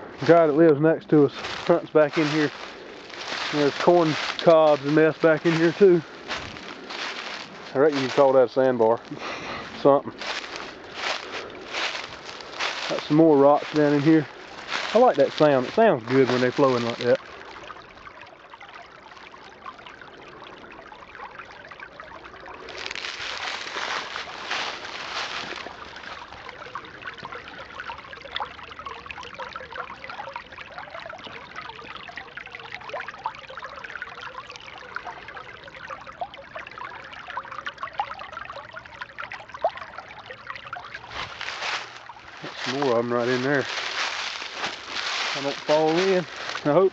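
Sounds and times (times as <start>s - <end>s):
creek water babbling over rocks: 0.0s - 46.9s.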